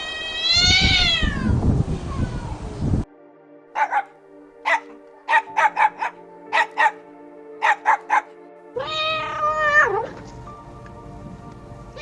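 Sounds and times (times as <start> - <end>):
cat meowing: 0.0 - 1.6, 8.8 - 10.3
background music: 3.0 - 12.0
dog barking: 3.8 - 8.4.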